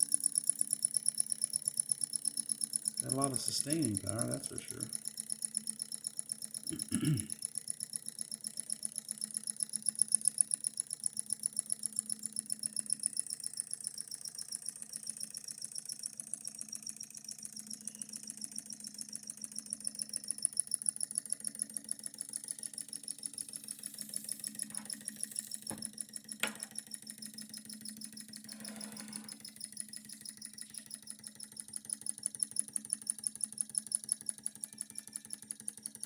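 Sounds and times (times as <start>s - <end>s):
model engine clicking: 1.9s - 6.6s, 29.2s - 36.0s.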